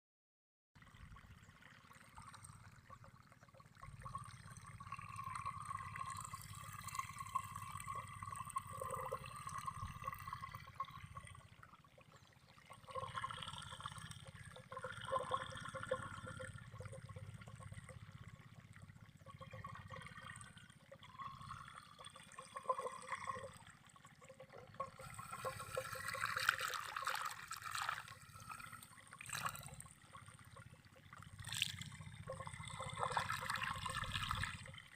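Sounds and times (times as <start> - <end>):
running water trickling: 20.6 - 34.9.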